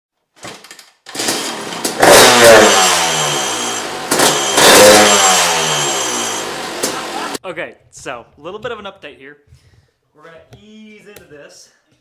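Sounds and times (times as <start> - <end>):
dirt bike engine revving: 1.2 - 7.4.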